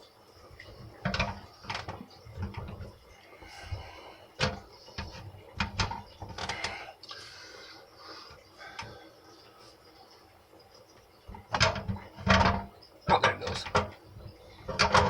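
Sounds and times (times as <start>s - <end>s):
sharp clicks and knocks: 4.4s - 6.8s, 11.3s - 15.0s.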